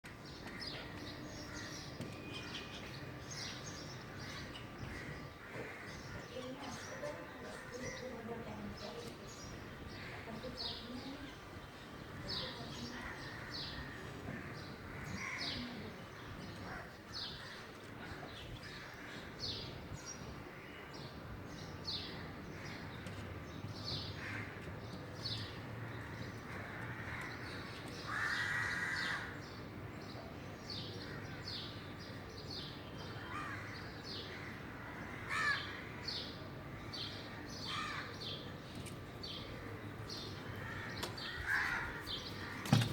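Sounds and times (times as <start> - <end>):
crow cawing: 13.0 - 15.8, 26.5 - 29.4, 33.2 - 36.1, 37.7 - 38.2, 40.5 - 42.8.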